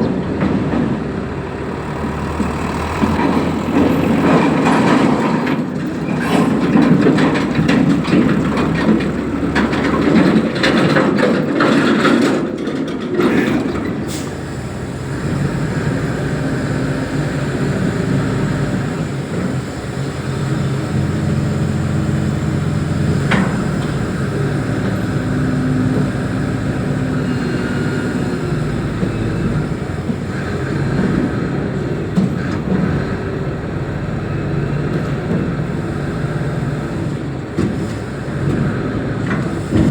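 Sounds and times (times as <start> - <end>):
heavy diesel engine running: 0.0 - 39.9
clatter of knocks and clanks: 2.3 - 14.3.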